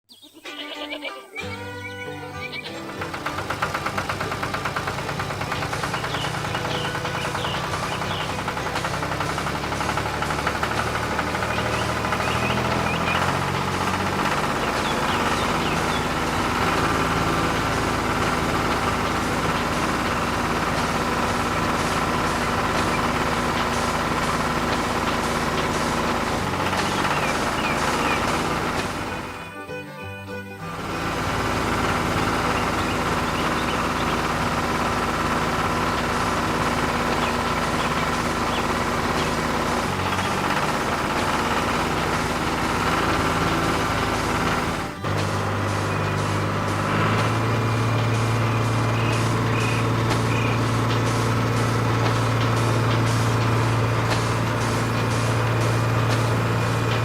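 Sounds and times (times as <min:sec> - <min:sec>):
vehicle engine idling: 0:01.5 - 0:57.0
motor humming: 0:02.5 - 0:29.6, 0:30.4 - 0:57.0.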